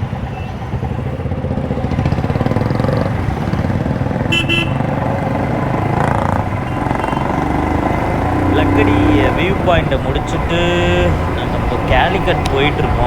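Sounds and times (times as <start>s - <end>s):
motorcycle engine running: 0.2s - 13.0s
horn toot: 4.2s - 5.0s, 6.5s - 9.2s.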